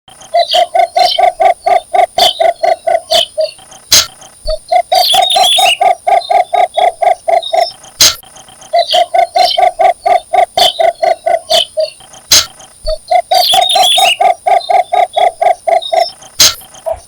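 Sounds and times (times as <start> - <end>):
bittern calling hollow notes: 0.1 - 17.0
higher bird twitter: 0.2 - 17.0
sharp clicks: 2.2 - 5.3, 7.5 - 9.1, 10.6 - 14.1, 15.8 - 17.0.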